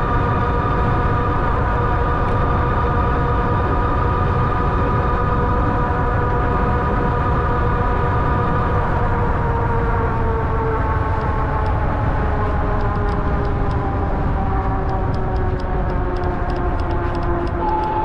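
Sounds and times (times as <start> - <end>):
electric bike motor whine: 0.0 - 18.0
tyre and wind rumble: 0.0 - 18.0
light ticks: 14.6 - 17.9.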